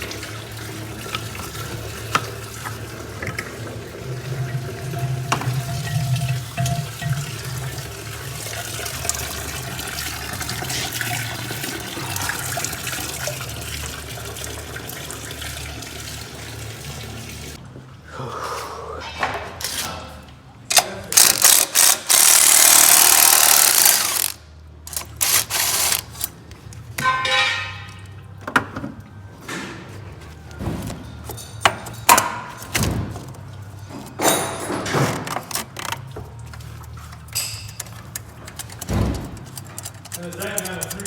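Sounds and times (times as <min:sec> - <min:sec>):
ratcheting: 0:21.1 - 0:26.3, 0:37.6 - 0:41.0
metal clanks and clicks: 0:34.2 - 0:41.0.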